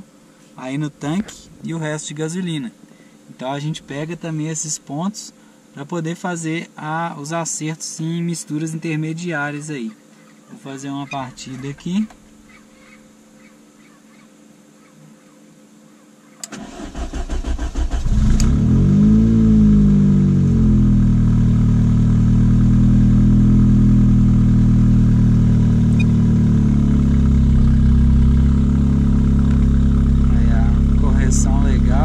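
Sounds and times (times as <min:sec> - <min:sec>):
car starter cranking: 0:16.4 - 0:18.7
car engine revving and idling: 0:17.4 - 0:32.0.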